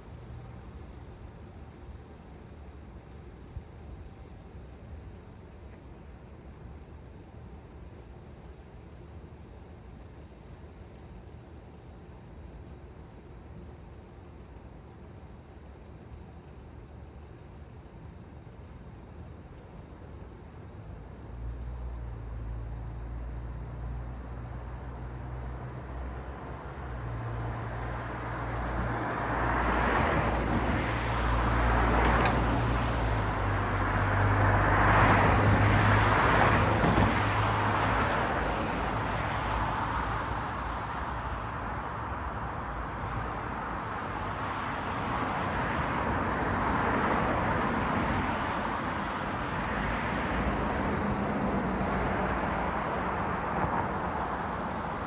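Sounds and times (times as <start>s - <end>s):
vehicle engine hum: 0.0s - 55.0s
cars passing: 26.4s - 55.0s.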